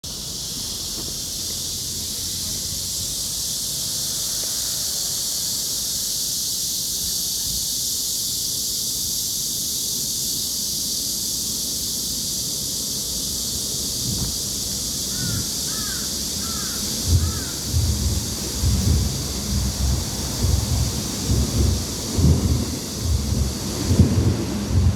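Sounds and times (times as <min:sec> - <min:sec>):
high-pitched forest hiss: 0:00.0 - 0:24.9
bird calls: 0:15.1 - 0:22.6
low thumps: 0:16.8 - 0:24.9.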